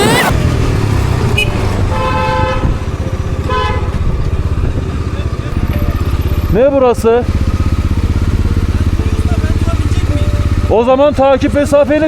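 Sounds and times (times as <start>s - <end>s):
motorcycle engine running: 0.0s - 12.0s
car horn honking: 1.3s - 4.7s.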